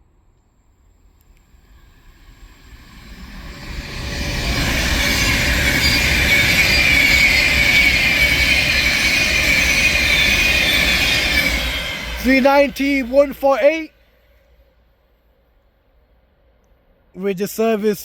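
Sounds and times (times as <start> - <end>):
train wheel and rail noise: 0.0 - 17.1.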